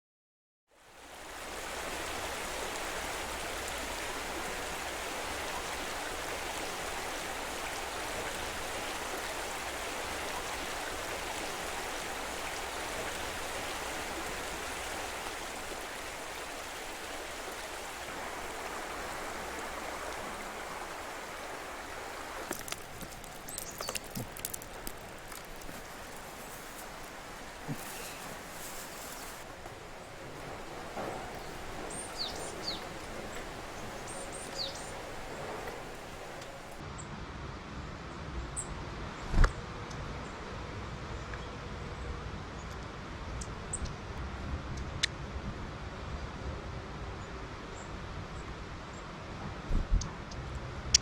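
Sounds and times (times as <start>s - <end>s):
stream flowing: 0.8s - 36.8s.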